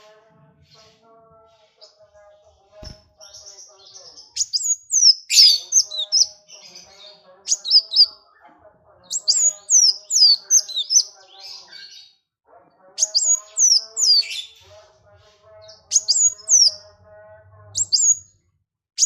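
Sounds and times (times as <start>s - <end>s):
songbird whistling: 4.4s - 6.3s, 15.9s - 16.8s, 17.8s - 18.2s
faint lower twittering: 17.8s - 18.4s.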